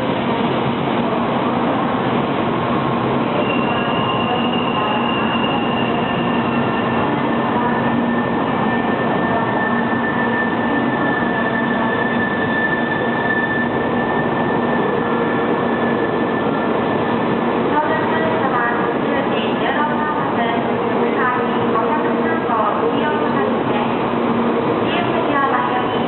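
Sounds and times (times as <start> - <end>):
train rolling noise: 0.0 - 26.0.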